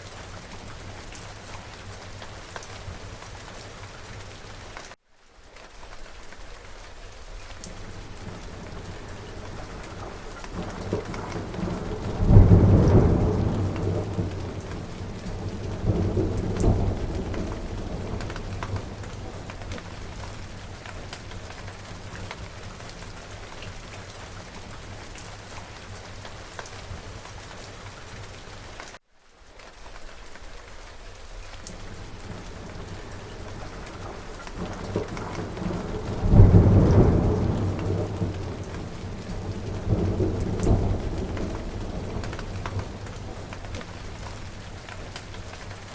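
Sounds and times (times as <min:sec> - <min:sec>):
steady rain falling: 0:00.0 - 0:45.9
thunder rumbling: 0:07.7 - 0:27.2, 0:31.8 - 0:45.9.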